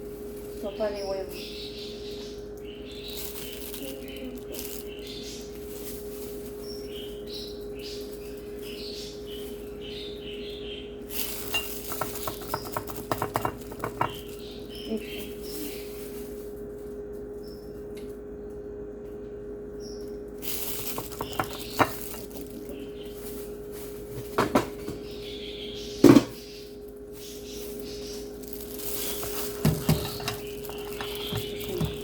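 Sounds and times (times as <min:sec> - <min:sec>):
steady low hum: 0:00.0 - 0:32.0
utensils clinking against cookware: 0:11.2 - 0:14.3, 0:20.7 - 0:22.4, 0:28.8 - 0:32.0.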